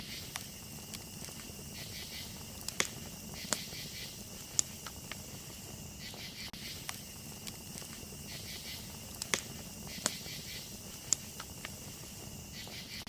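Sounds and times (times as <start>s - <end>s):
campfire crackling and popping: 0.0s - 13.0s
crickets chirping: 0.0s - 13.0s.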